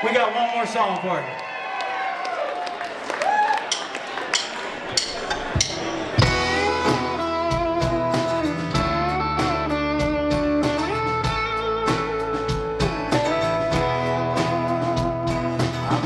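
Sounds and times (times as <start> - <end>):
drum beat: 3.6 - 16.0
bass guitar: 5.3 - 16.0
electric guitar lead: 6.2 - 16.0.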